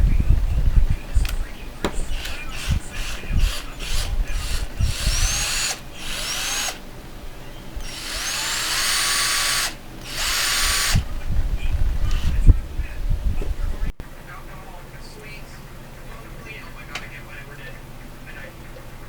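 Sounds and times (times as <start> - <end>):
knocks handling drill: 1.8 - 6.8, 7.8 - 11.1, 12.0 - 12.4
cordless drill motor whining: 1.8 - 6.9, 7.7 - 11.1, 12.0 - 12.5.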